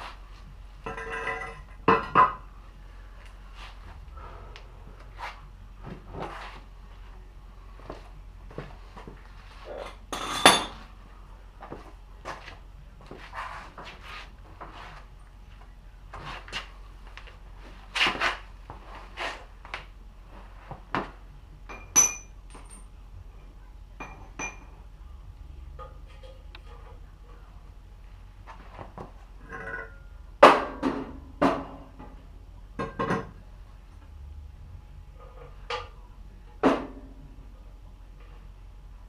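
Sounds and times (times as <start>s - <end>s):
metal tools clinking and knocking: 0.8s - 2.3s, 21.7s - 22.9s.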